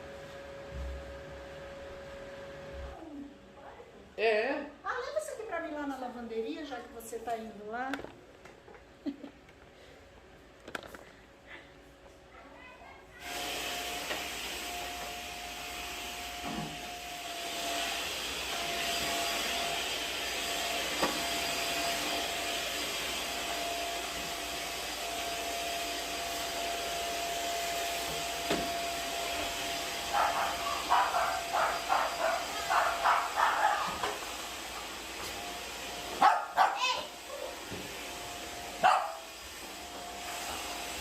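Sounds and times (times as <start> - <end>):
vacuum cleaner running: 0.0 - 3.3, 13.2 - 41.0
dog barking: 30.1 - 34.2, 36.2 - 37.1, 38.8 - 39.3.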